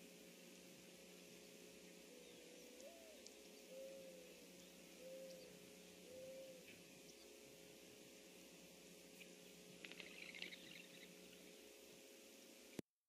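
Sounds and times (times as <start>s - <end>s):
bird cooing: 2.0s - 6.8s, 9.9s - 11.1s.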